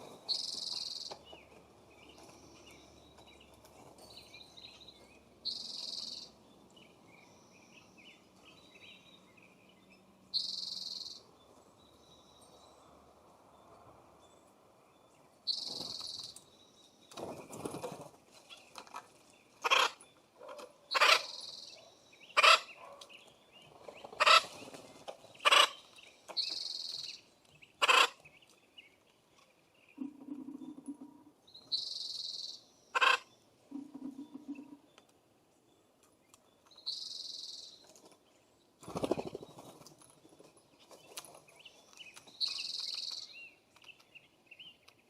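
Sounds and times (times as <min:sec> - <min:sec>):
harsh bird calls: 0:19.6 - 0:28.3, 0:29.8 - 0:34.9.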